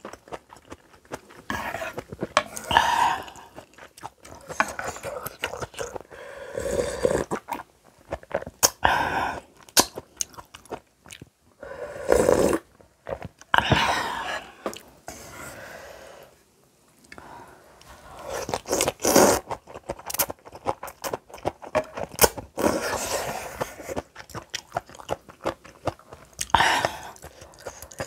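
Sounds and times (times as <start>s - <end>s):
wet chewing and crunching: 0.0s - 6.1s, 7.2s - 11.4s, 18.3s - 28.0s.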